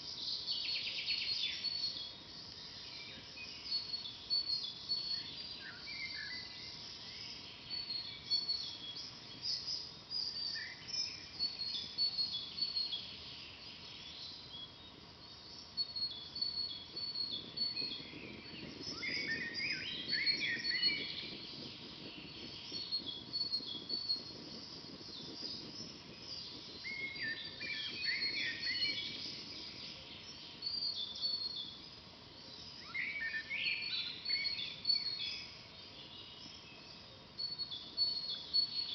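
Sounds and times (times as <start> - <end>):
songbirds chirping and trilling: 0.0 - 38.9
campfire crackling: 6.6 - 32.8.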